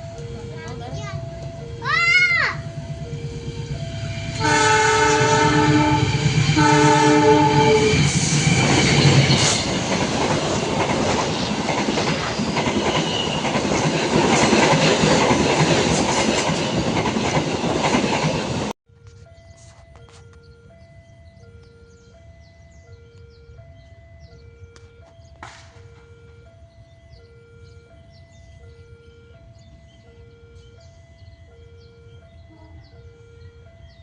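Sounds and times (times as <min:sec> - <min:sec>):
level crossing warning alarm: 0:00.0 - 0:34.0
train passing with wheel clatter: 0:00.0 - 0:34.0
train horn blasts: 0:03.0 - 0:08.3.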